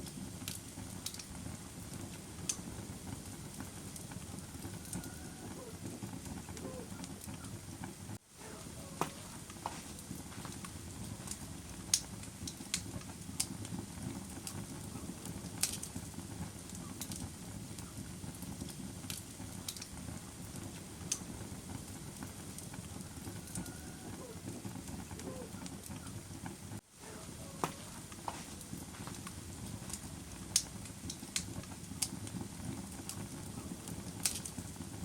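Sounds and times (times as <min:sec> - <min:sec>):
burning wood crackling and popping: 0:00.0 - 0:35.0
low rumble of flame: 0:00.0 - 0:35.0.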